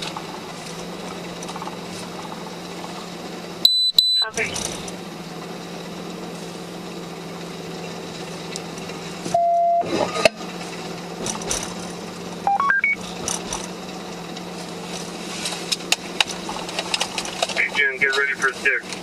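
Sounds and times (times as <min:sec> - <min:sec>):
vehicle cabin hum: 0:00.0 - 0:19.0
police radio beeps: 0:03.6 - 0:04.7, 0:09.3 - 0:09.9, 0:12.5 - 0:13.0.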